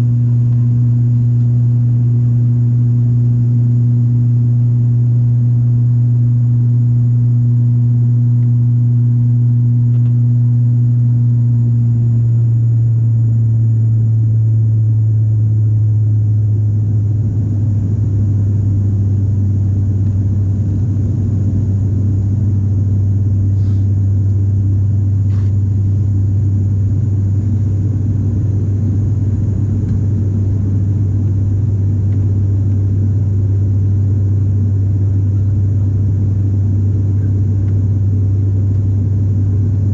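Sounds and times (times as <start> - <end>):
airliner engine drone: 0.0 - 39.9.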